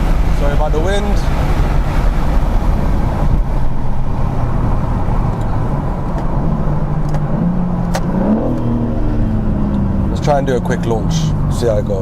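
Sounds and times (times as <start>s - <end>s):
wind noise on microphone: 0.0s - 9.7s
car engine cruising: 0.0s - 12.0s.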